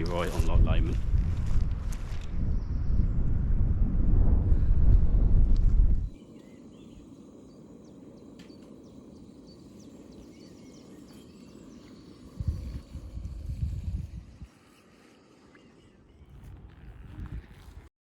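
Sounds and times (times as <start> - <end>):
wind buffeting microphone: 0.0 - 6.2, 12.3 - 14.5, 16.2 - 17.9.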